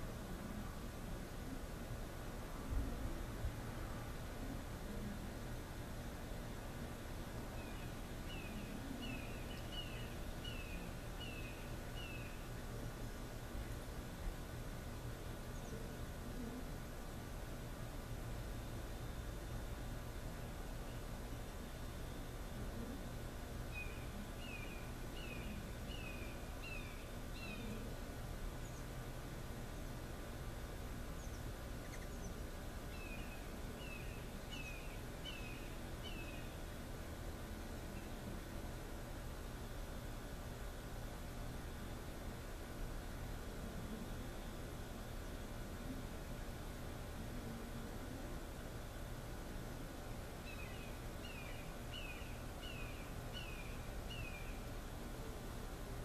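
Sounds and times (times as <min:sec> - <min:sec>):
outdoor background noise: 0:00.0 - 0:56.0
steady hiss: 0:00.0 - 0:56.0
small bird chirping: 0:07.6 - 0:12.5, 0:23.7 - 0:27.8, 0:31.1 - 0:36.6, 0:50.4 - 0:54.7.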